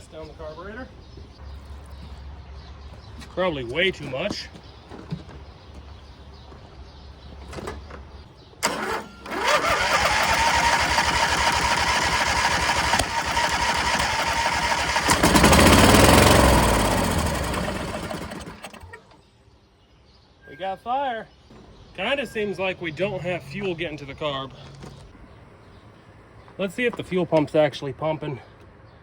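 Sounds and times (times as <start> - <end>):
engine firing: 8.6 - 19.2
starter cranking whine: 8.6 - 19.2.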